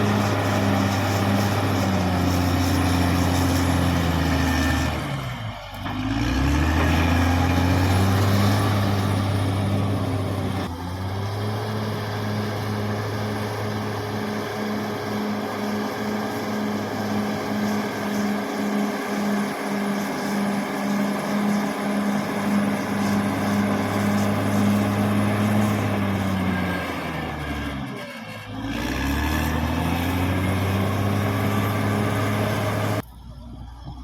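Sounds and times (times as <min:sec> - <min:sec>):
bulldozer diesel engine running: 0:00.0 - 0:34.0.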